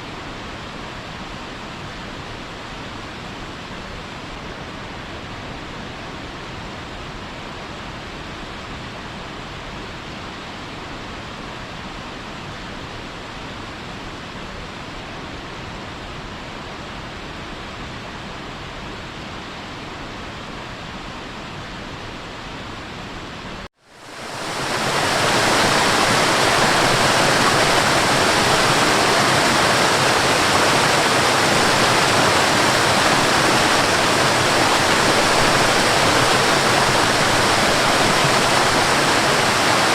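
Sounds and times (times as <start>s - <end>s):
louder brighter falling water: 23.8s - 39.9s
waterfall rushing: 23.9s - 39.9s.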